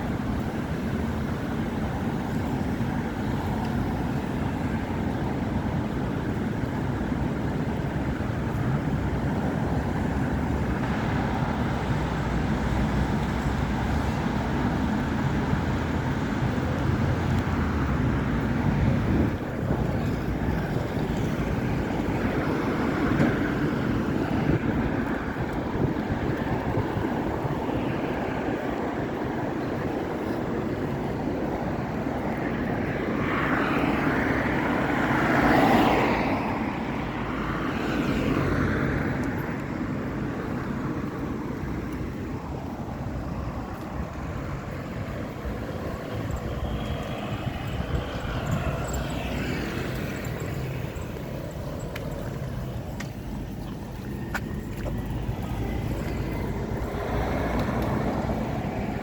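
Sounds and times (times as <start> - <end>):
road traffic: 0.0 - 59.0
loud vehicle passing: 43.4 - 59.0.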